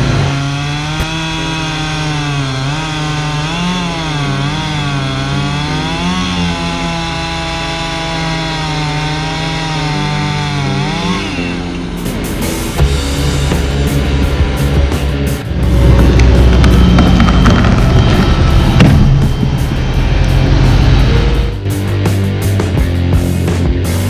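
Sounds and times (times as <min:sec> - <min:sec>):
chainsaw cutting wood: 0:00.0 - 0:12.5, 0:15.5 - 0:21.7.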